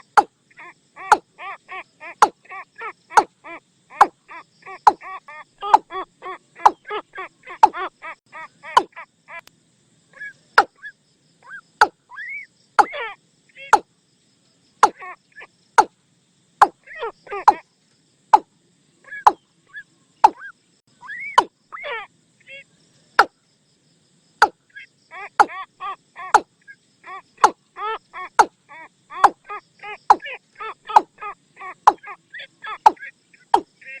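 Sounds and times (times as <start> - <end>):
hollow bird decoy call notes: 0.0 - 9.4, 10.1 - 13.9, 14.8 - 15.2, 16.6 - 17.6, 19.1 - 21.8, 24.4 - 25.6, 26.2 - 34.0.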